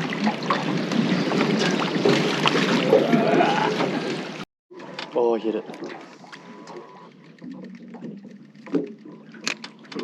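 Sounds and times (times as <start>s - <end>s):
splashes or knocks: 0.0s - 4.2s.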